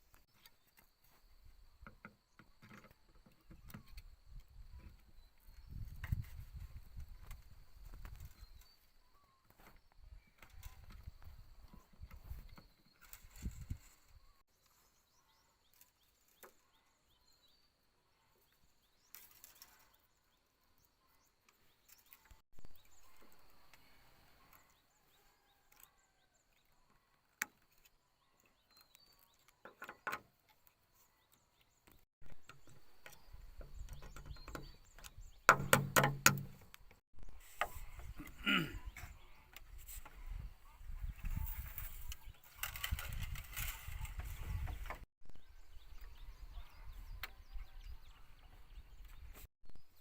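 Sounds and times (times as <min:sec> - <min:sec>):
knocks and clatters: 0:32.2 - 0:36.8.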